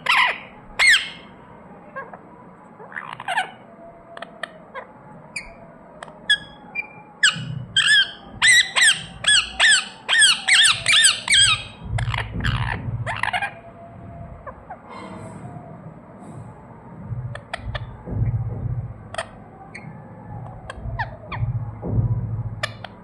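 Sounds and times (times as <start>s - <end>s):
parrot chirping: 0.0s - 1.3s, 2.8s - 3.6s, 6.2s - 13.6s.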